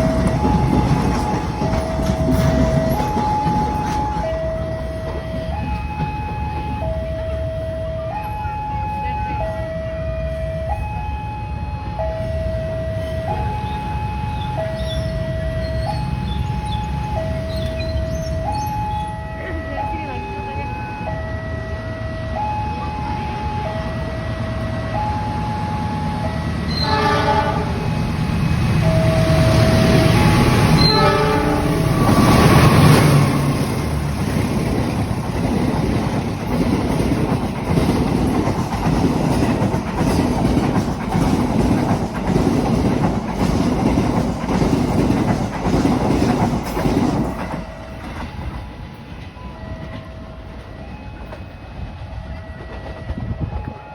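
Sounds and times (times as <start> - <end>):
train wheels clattering over rail joints: 0.0 - 6.9, 28.2 - 51.5
train horn: 26.7 - 28.1, 28.8 - 33.6.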